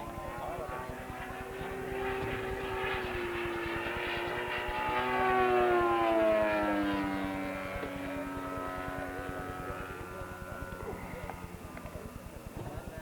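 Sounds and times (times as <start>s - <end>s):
model airplane propeller engine: 0.0s - 13.0s.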